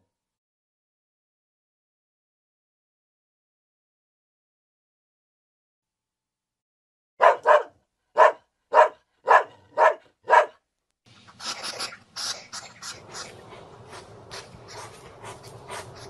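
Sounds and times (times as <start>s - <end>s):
dog barking: 7.2s - 10.6s.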